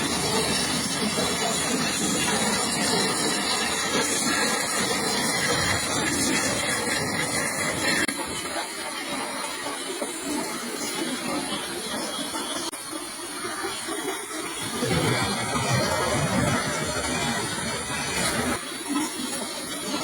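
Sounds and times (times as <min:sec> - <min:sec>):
pressure washer spraying water: 0:00.0 - 0:08.1, 0:12.9 - 0:18.8.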